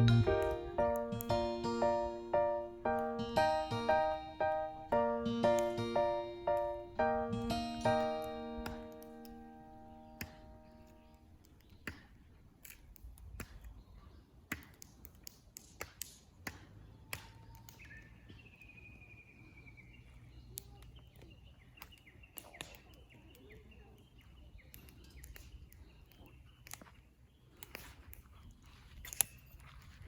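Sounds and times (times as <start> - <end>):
campfire crackling: 0.0 - 17.9.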